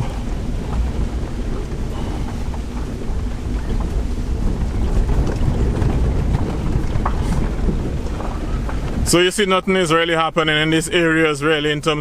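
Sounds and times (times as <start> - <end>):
vehicle engine and tyres rumbling: 0.0 - 12.0
wind buffeting microphone: 0.0 - 12.0.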